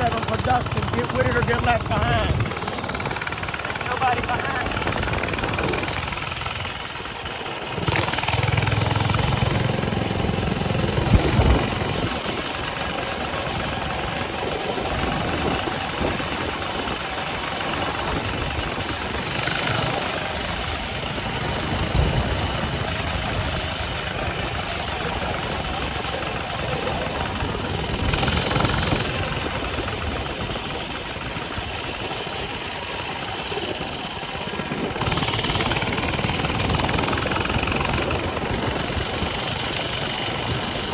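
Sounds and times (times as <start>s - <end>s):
wind rushing over microphone: 0.0s - 6.8s, 7.7s - 32.8s
small engine running: 0.0s - 40.9s.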